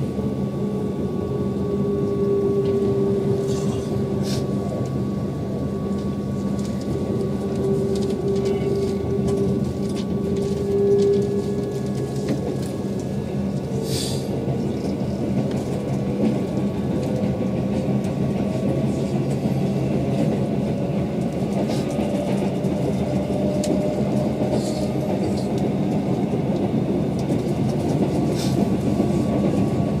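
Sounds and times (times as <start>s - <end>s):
train wheels rumbling on rails: 0.0s - 30.0s
brief high hisses: 13.8s - 14.3s.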